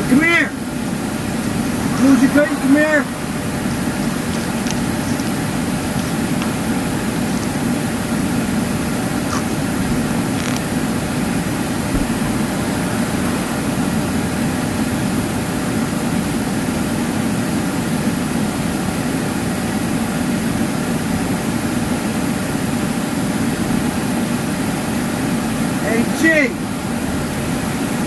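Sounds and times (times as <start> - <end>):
air conditioning blowing: 0.0 - 28.0
car engine idling: 0.0 - 28.0.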